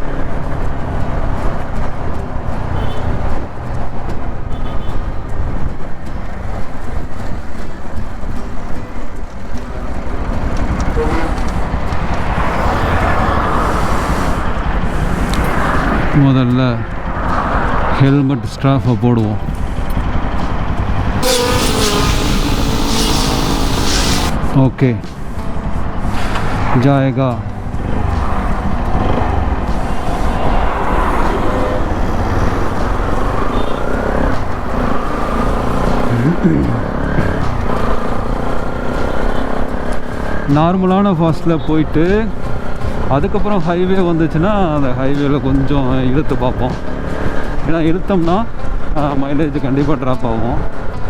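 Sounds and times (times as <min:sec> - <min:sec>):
road traffic noise: 0:00.0 - 0:51.0
motorcycle engine running: 0:06.5 - 0:16.2, 0:19.4 - 0:24.5, 0:27.5 - 0:40.6.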